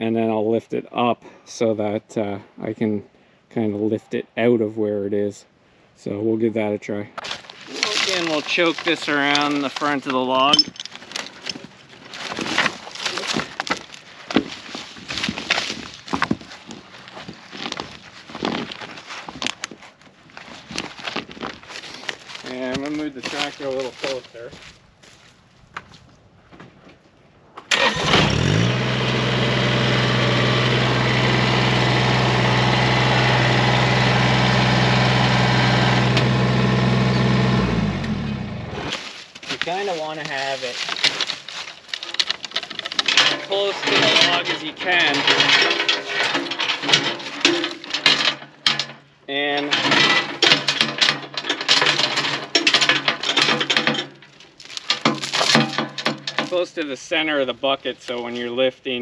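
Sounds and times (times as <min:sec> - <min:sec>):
metal chain rattling and clinking: 0:07.7 - 0:16.9, 0:40.4 - 0:56.7
diesel tractor engine starting and idling: 0:27.7 - 0:38.9.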